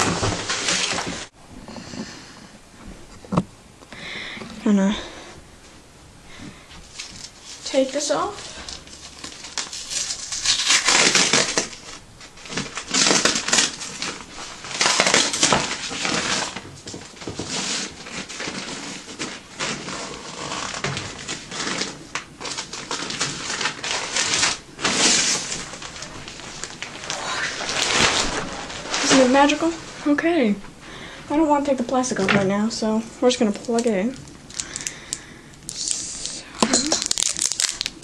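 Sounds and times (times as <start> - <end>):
packaging crinkling and rustling: 0.0 - 1.3, 6.8 - 30.2, 33.3 - 38.0.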